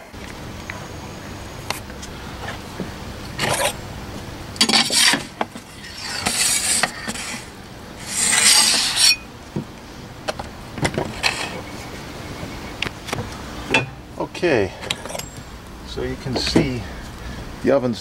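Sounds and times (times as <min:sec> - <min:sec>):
loaf on peel scraping oven floor: 0:03.4 - 0:03.8, 0:04.6 - 0:09.3
wooden door scraping on stone: 0:04.6 - 0:09.1.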